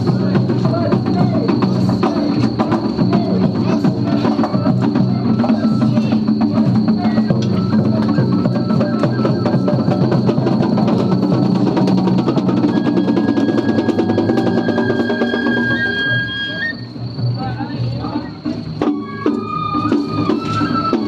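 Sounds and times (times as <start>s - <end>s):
taiko drums beating: 0.0s - 16.2s, 18.4s - 21.0s.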